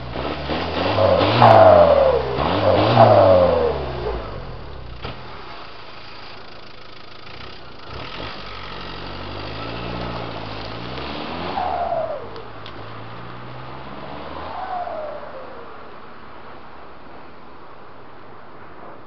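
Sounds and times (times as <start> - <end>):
diesel engine revving and idling: 0.0 - 15.8.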